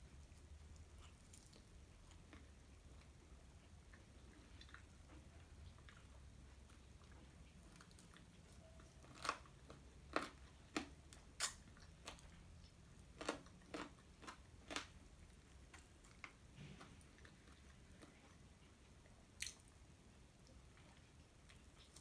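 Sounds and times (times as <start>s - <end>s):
crunching fried chicken: 0.1s - 18.5s.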